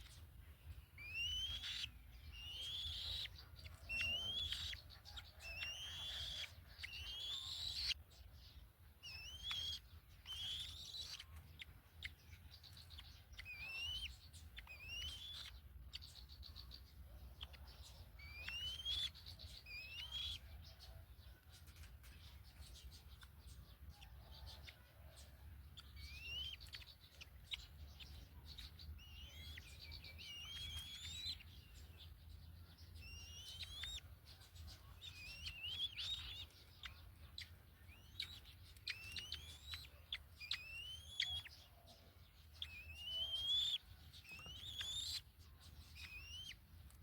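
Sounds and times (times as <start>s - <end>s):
kites whistled calls: 1.0s - 3.3s.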